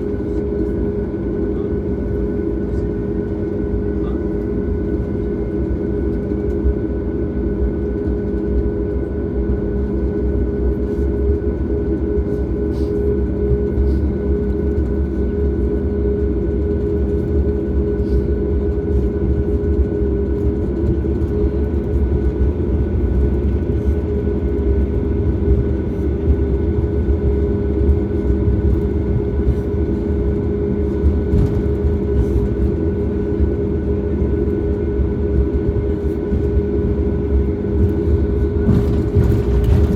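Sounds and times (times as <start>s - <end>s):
airplane cabin engine roar: 0.0s - 39.9s
faint cabin rattles: 18.6s - 39.9s.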